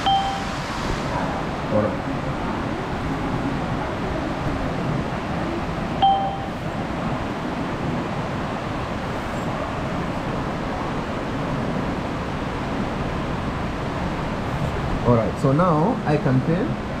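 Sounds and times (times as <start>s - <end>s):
short electronic beep: 0.0s - 0.6s, 6.0s - 6.6s.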